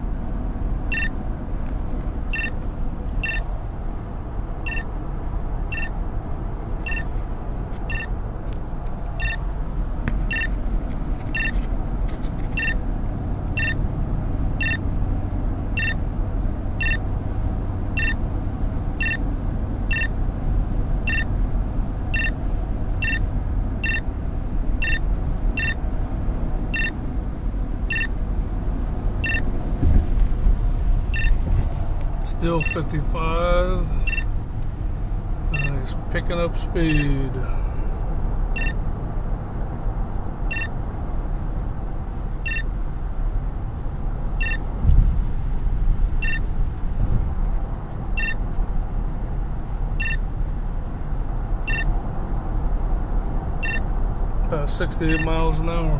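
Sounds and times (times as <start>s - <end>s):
road and engine rumble in car: 0.0s - 55.9s
short electronic beep: 0.9s - 1.1s, 2.3s - 2.6s, 3.2s - 3.4s, 4.7s - 4.9s, 5.7s - 5.9s, 6.8s - 7.1s, 7.9s - 8.1s, 9.2s - 9.4s, 10.3s - 10.5s, 11.3s - 11.6s, 12.6s - 12.8s, 13.6s - 13.8s, 14.6s - 14.8s, 15.8s - 16.0s, 16.8s - 17.0s, 18.0s - 18.2s, 19.0s - 19.2s, 19.9s - 20.1s, 21.1s - 21.3s, 22.2s - 22.4s, 23.0s - 23.2s, 23.8s - 24.1s, 24.8s - 25.0s, 25.6s - 25.8s, 26.8s - 27.0s, 27.9s - 28.1s, 29.2s - 29.5s, 31.1s - 31.4s, 34.0s - 34.3s, 35.6s - 35.8s, 38.6s - 38.8s, 40.5s - 40.7s, 42.4s - 42.7s, 44.4s - 44.6s, 46.2s - 46.4s, 48.2s - 48.4s, 50.0s - 50.2s, 51.7s - 51.9s, 53.6s - 53.8s.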